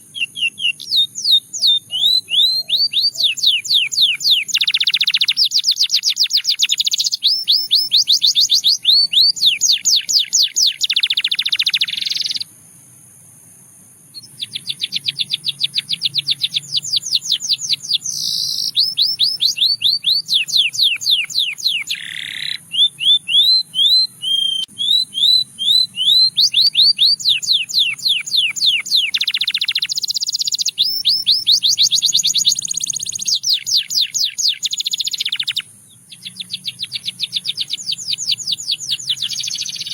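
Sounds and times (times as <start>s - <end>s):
canary singing: 0.0s - 12.5s, 14.1s - 39.9s.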